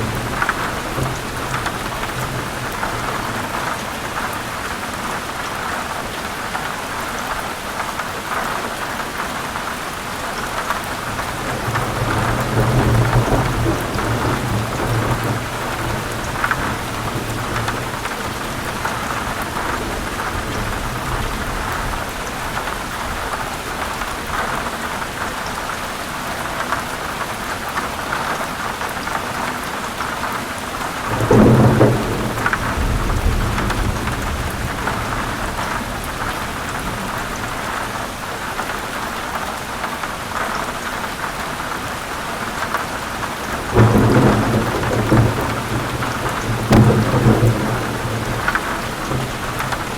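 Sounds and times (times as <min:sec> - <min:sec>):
thunder rumbling: 0:00.0 - 0:04.5, 0:10.9 - 0:23.3, 0:31.0 - 0:38.1, 0:43.2 - 0:49.9
heavy rain: 0:00.0 - 0:49.9.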